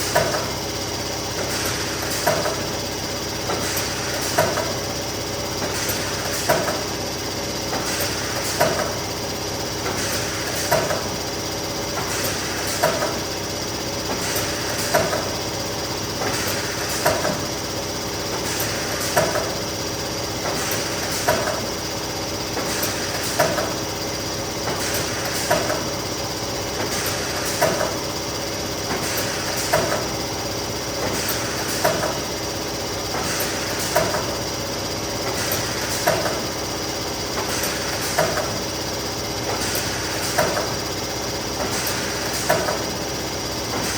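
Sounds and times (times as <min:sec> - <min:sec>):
laminating machine running: 0:00.0 - 0:43.9.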